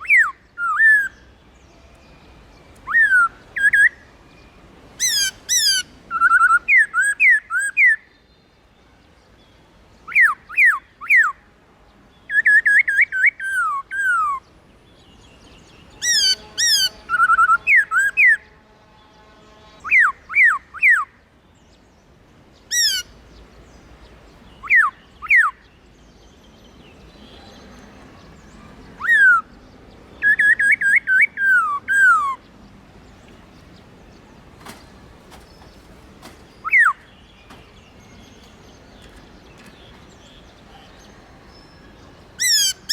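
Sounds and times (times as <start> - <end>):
bird singing whistled phrases: 2.8 - 4.0, 5.1 - 8.1, 30.2 - 32.4, 36.6 - 37.6.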